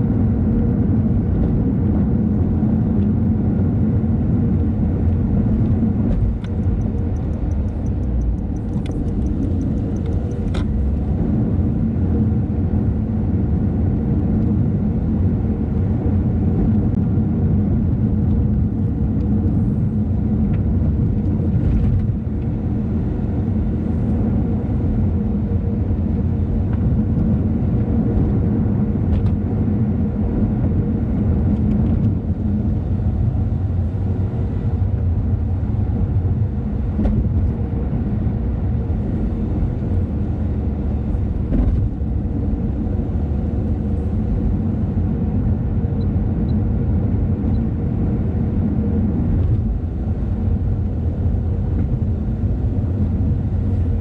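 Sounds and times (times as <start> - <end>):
car engine and tyre rumble: 0.0 - 54.0
sharp clicks: 6.3 - 10.7.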